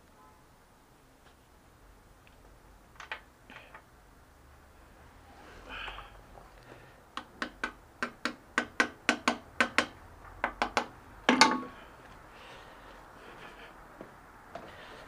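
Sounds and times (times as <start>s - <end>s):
sharp taps on metal parts: 7.1s - 11.8s.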